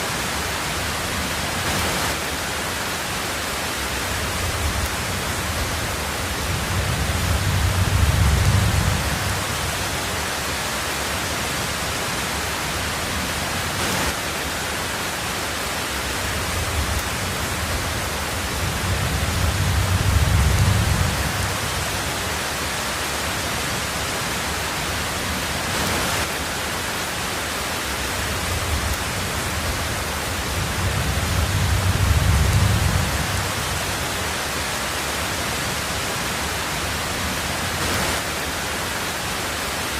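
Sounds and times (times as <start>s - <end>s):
heavy rain on a tin roof: 0.0s - 39.9s
distant thunder rolling: 4.1s - 10.0s, 16.4s - 22.0s, 28.4s - 34.1s.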